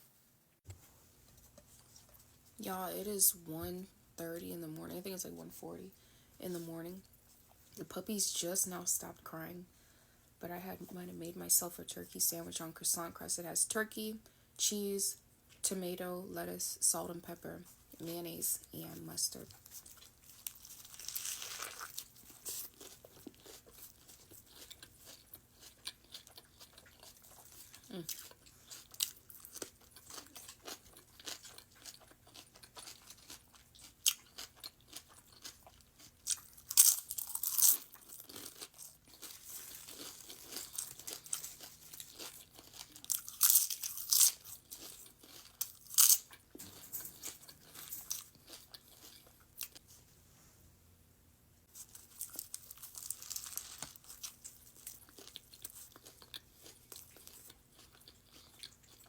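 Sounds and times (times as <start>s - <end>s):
person eating crunchy bread: 19.3s - 49.8s, 51.7s - 59.0s.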